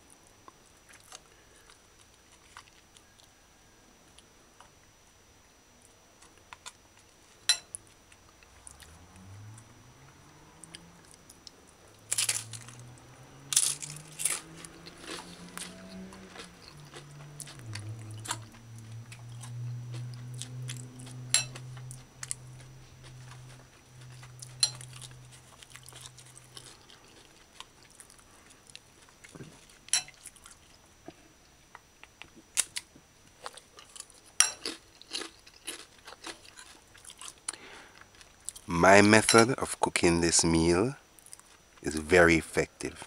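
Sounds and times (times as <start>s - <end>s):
low steady hum: 0.0s - 43.0s
chips crunching and chewed: 0.9s - 3.0s, 10.6s - 30.8s, 32.5s - 39.2s, 41.2s - 41.9s.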